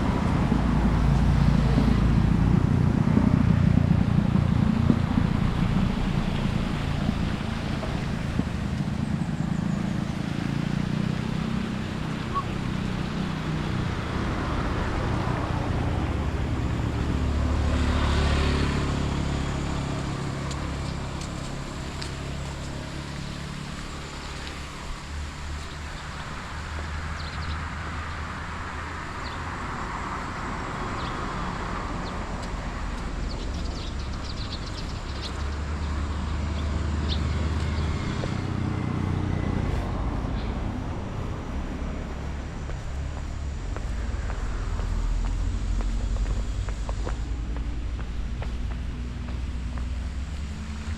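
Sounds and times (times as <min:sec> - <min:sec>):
cars passing on a street: 0:00.0 - 0:50.9.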